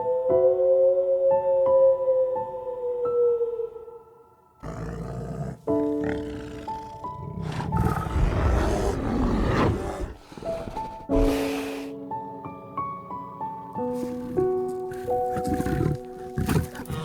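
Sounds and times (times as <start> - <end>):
large animal growling and roaring: 4.6 - 11.8, 14.0 - 17.0
soft piano music: 11.0 - 17.0.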